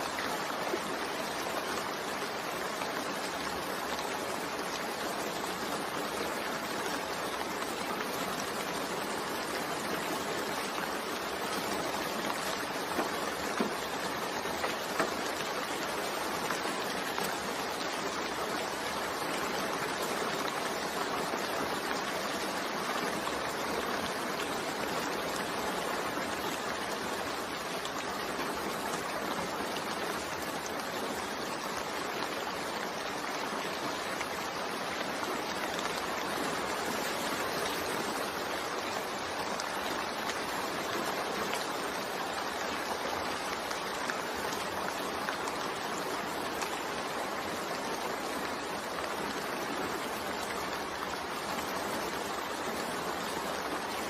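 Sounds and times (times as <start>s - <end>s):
rain falling: 0.0s - 54.0s
raindrops tapping: 10.6s - 19.2s.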